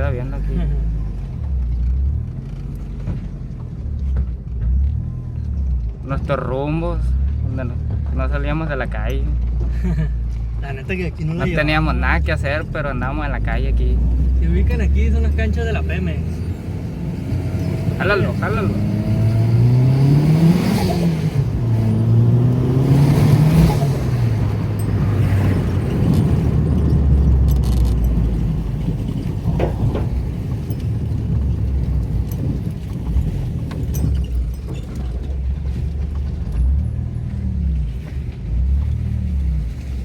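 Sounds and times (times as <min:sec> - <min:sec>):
car engine accelerating: 0:00.0 - 0:40.0.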